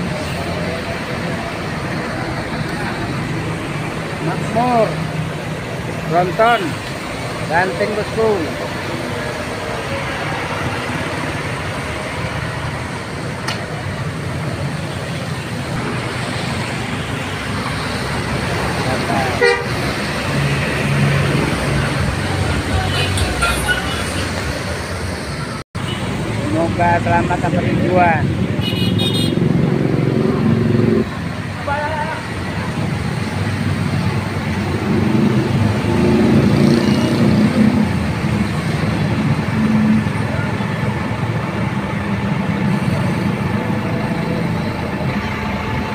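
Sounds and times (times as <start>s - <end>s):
bus engine running: 0.0s - 28.9s, 29.5s - 45.9s
road noise hiss: 0.0s - 45.9s
diesel bus engine idling: 37.9s - 45.9s.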